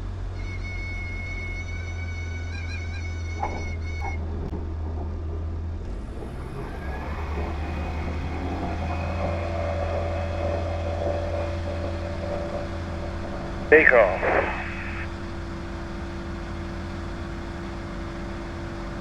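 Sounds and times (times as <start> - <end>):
light aircraft engine and propeller: 0.0 - 4.9, 5.6 - 19.0
high warning tone: 7.9 - 16.0.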